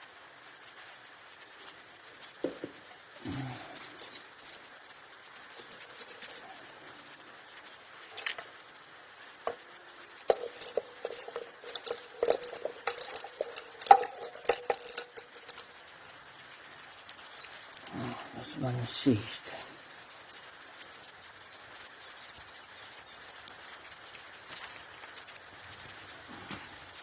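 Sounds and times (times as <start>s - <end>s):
hand tools clinking on metal: 5.6s - 6.6s, 9.5s - 15.8s.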